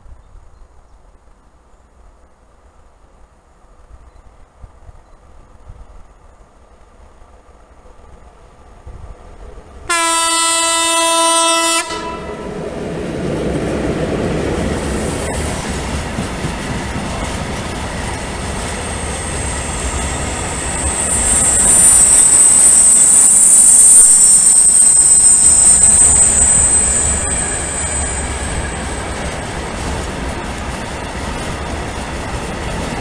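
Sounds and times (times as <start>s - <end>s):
rolling rumble of passing train: 0.0s - 33.0s
locomotive horn blast: 9.9s - 12.6s
high-pitched wheel squeal: 18.8s - 29.2s.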